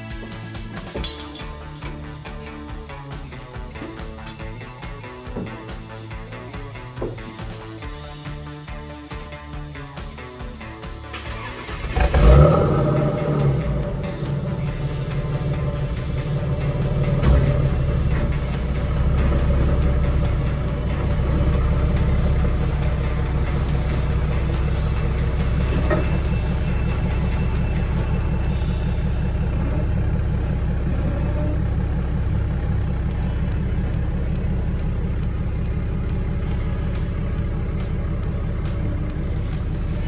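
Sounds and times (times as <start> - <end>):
engine idling: 11.1 - 40.0.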